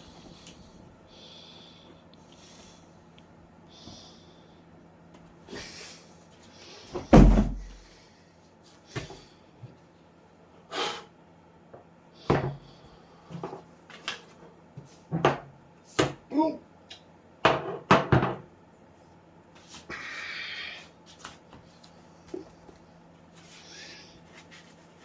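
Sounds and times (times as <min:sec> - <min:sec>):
heavy thump: 0:07.0 - 0:07.8.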